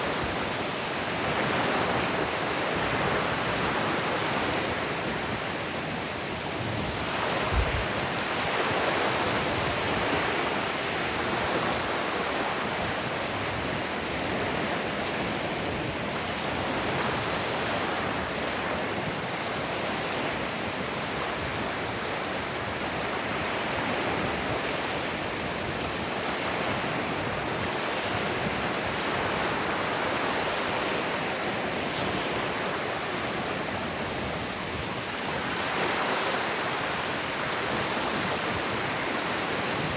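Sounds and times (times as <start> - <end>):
ocean surf on sandy beach: 0.0 - 39.9.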